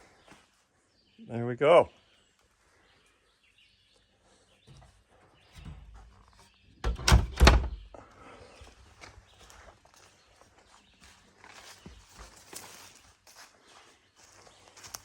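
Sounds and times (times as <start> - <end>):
wooden door banging: 6.8 - 8.0.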